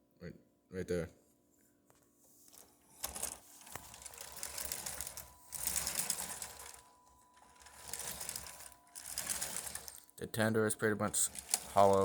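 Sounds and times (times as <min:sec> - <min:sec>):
toy train motor whirring: 0:02.9 - 0:10.1, 0:11.0 - 0:12.0.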